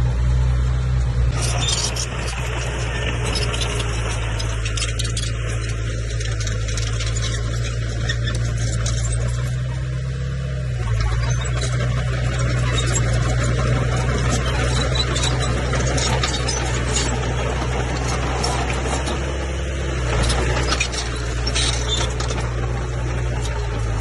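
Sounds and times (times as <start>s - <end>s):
bulldozer diesel engine running: 0.0s - 24.0s
light clanks and rattles: 20.0s - 24.0s.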